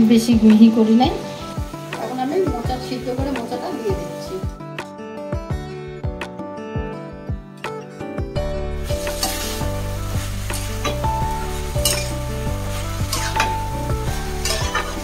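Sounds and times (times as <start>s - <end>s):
food sizzling in oil: 0.0s - 4.8s, 8.5s - 15.0s
background music: 0.0s - 15.0s
metal spatula scraping pan: 9.0s - 9.6s, 11.7s - 12.3s, 13.0s - 15.0s.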